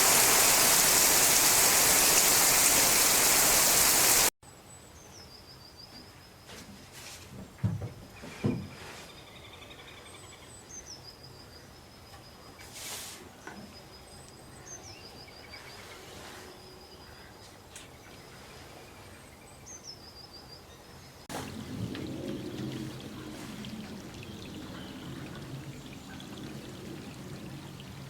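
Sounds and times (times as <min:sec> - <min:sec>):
pouring rain: 0:00.0 - 0:04.3, 0:21.3 - 0:28.0.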